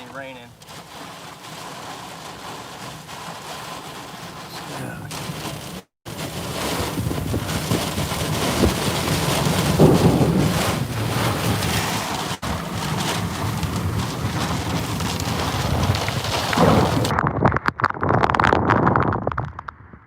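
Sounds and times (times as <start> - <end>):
heavy rain beating on a truck: 0.0 - 17.2
gusting wind: 0.0 - 20.0.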